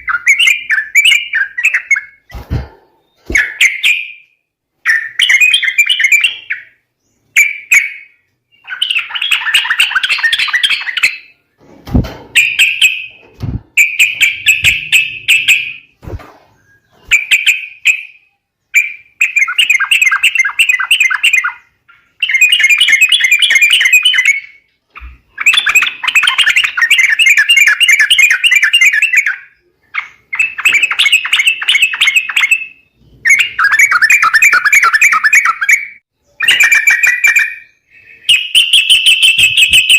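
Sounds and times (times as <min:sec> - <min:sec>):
low thuds: 0:13.2 - 0:15.0
bird chattering calls: 0:13.7 - 0:15.8.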